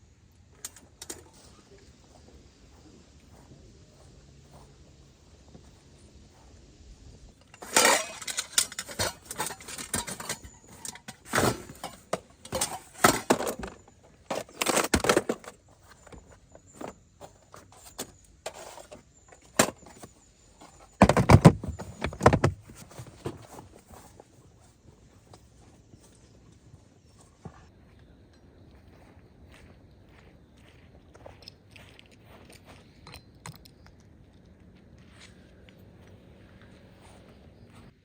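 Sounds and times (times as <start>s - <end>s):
objects clattering and rustling: 7.4s - 27.7s
sharp knocks and clinks: 7.5s - 15.3s.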